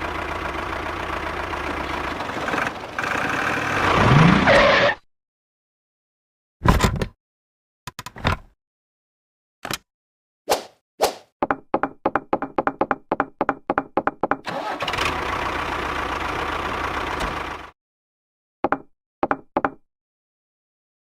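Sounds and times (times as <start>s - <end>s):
engine-like running sound: 0.0s - 4.5s, 14.5s - 17.8s.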